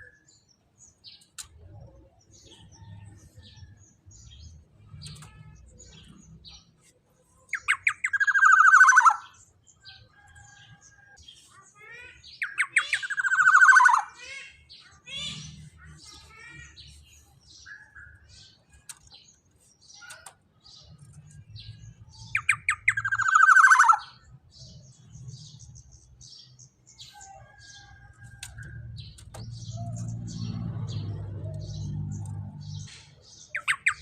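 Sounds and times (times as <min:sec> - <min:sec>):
soft bird chirps and whistles: 0:03.6 - 0:24.8, 0:29.4 - 0:34.0
bird singing harsh notes: 0:04.3 - 0:09.6, 0:12.0 - 0:18.8, 0:19.8 - 0:25.8, 0:29.0 - 0:34.0.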